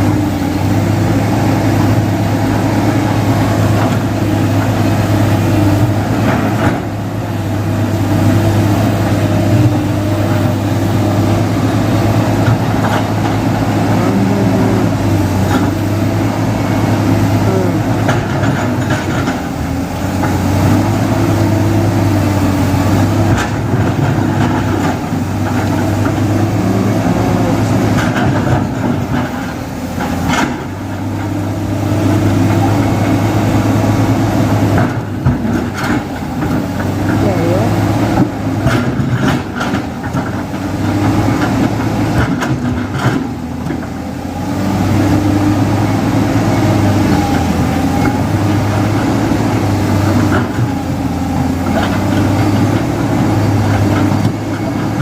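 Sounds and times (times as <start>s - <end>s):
construction machinery diesel engine: 0.0s - 55.0s.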